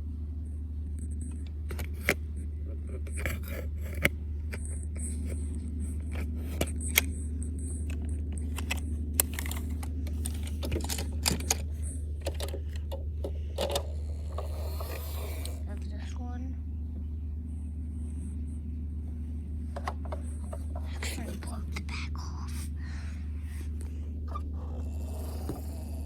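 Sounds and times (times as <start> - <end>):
steady low hum: 0.0 - 26.0
toy truck clicks and knocks: 3.0 - 4.6, 7.9 - 11.6, 12.2 - 15.6.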